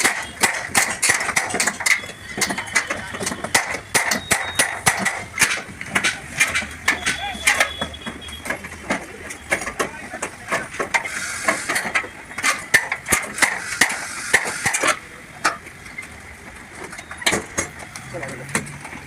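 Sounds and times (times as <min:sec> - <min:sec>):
hand tools knocking on sheet metal: 0:00.0 - 0:11.0.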